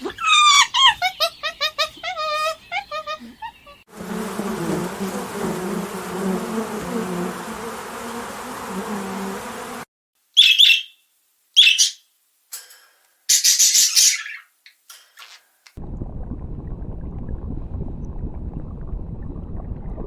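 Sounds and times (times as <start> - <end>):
insect buzzing: 3.9 - 9.9
high bird chirps: 10.4 - 11.0, 11.6 - 12.1, 13.3 - 15.4.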